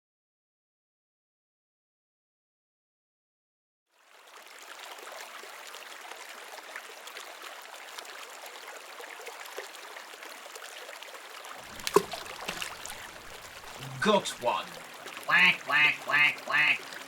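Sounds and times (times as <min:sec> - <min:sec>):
flowing water: 0:04.0 - 0:17.0
faint splashes and ticks: 0:11.6 - 0:16.7.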